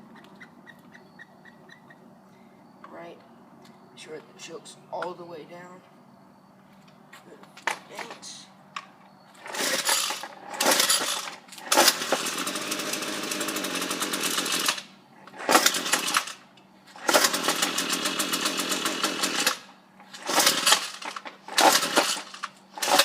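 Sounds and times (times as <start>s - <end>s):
pull starter cord: 9.4s - 16.4s, 17.0s - 23.0s
string trimmer engine ticking: 9.4s - 23.0s.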